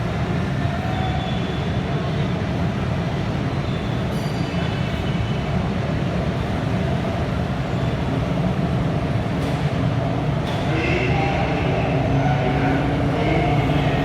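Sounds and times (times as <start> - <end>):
train rumbling: 7.0 - 14.0.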